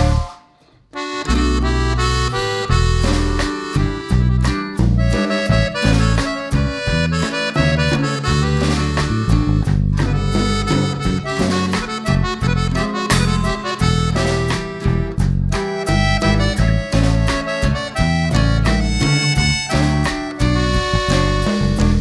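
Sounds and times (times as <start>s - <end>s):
upbeat instrumental music: 0.0s - 22.0s.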